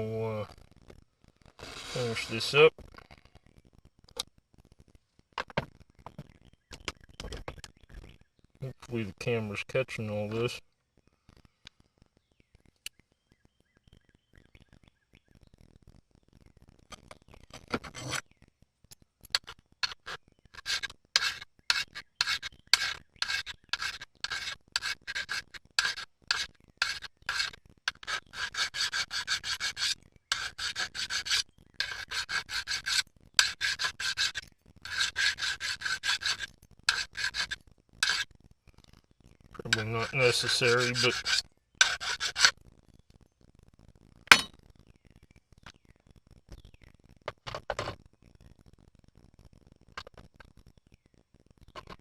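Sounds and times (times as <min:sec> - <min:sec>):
rasping rubbing strokes: 0:01.6 - 0:02.7, 0:17.6 - 0:18.2, 0:19.4 - 0:38.3, 0:39.6 - 0:42.5.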